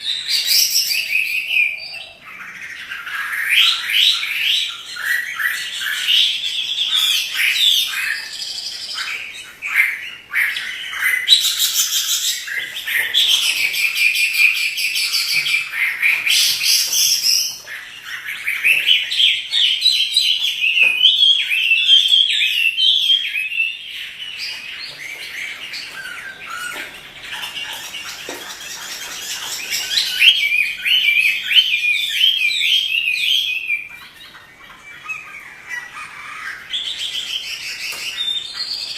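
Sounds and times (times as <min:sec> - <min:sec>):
bird singing whistled trills: 0:00.0 - 0:38.9.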